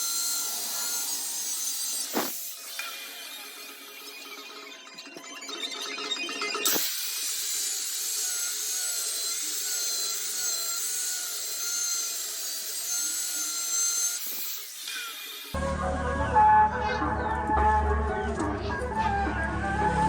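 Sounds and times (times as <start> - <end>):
tool sawing or grinding: 0.0 - 4.8, 6.6 - 15.6.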